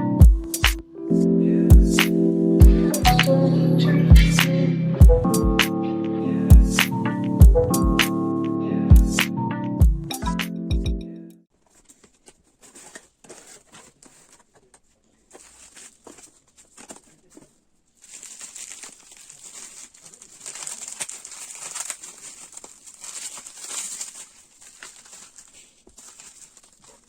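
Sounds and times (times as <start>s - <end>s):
plastic crinkling: 11.5s - 27.0s.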